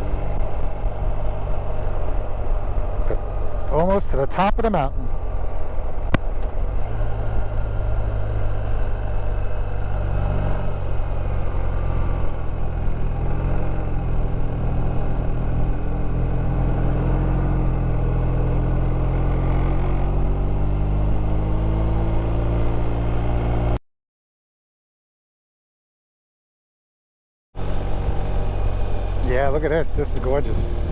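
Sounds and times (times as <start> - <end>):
motorcycle engine running under load: 0.0 - 3.9, 5.0 - 22.2, 27.6 - 30.9
road noise: 0.0 - 23.8, 27.6 - 30.9.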